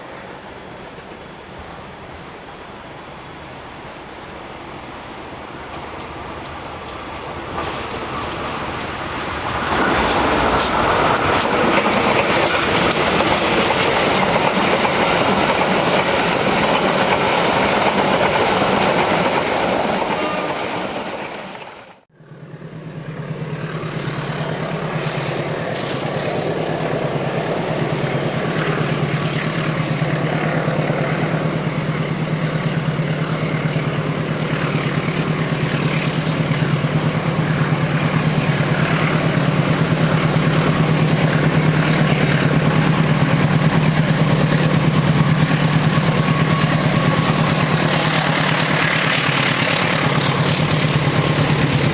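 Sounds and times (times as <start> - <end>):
diesel locomotive engine drone: 0.0 - 51.9
train wheels clattering: 4.1 - 21.8.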